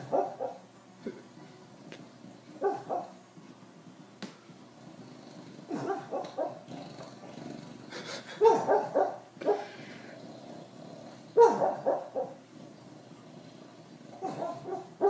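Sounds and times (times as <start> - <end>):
dog barking: 0.0 - 0.6, 2.6 - 3.2, 5.7 - 6.6, 8.4 - 9.7, 11.4 - 12.4, 14.2 - 15.0.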